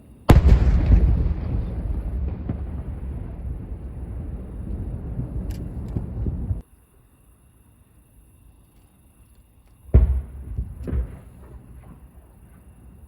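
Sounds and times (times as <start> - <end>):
distant fireworks bang: 0.3 - 6.6, 9.9 - 13.0
firework pops and crackles: 0.3 - 6.6, 10.0 - 12.8
rolling echoing booms: 0.3 - 6.6, 9.9 - 13.0.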